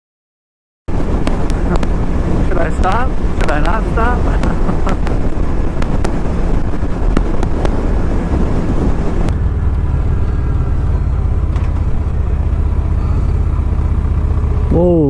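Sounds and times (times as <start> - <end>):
wind rushing over microphone: 0.9 - 14.7
motorcycle engine idling: 9.3 - 15.0.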